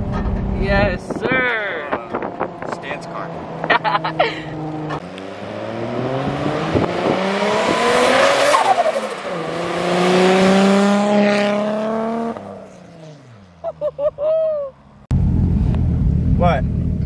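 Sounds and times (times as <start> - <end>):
car accelerating past: 4.5 - 13.6.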